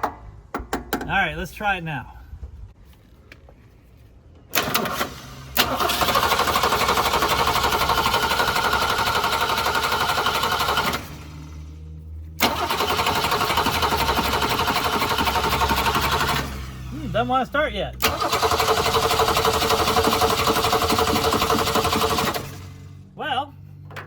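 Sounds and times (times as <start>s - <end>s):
car engine cranking by starter: 4.5s - 11.8s, 12.4s - 17.3s, 17.9s - 23.0s.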